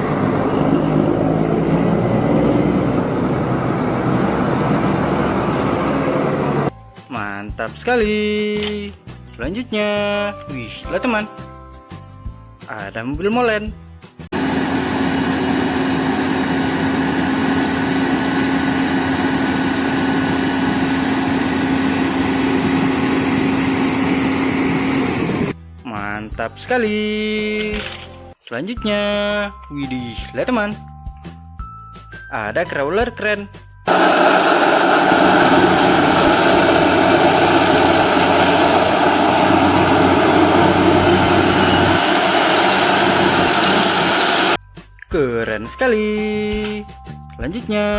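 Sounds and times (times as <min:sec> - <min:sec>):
vehicle engine running: 0:00.0 - 0:06.7, 0:14.4 - 0:25.5, 0:33.9 - 0:44.6.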